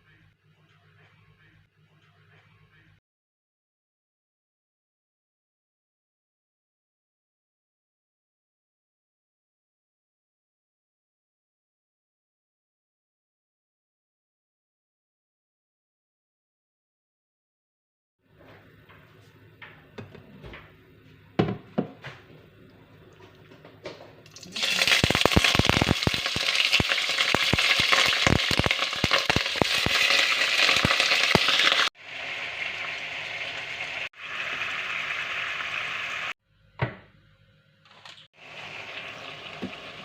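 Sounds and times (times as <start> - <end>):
food sizzling in hot oil: 24.3 - 36.4, 38.4 - 40.0.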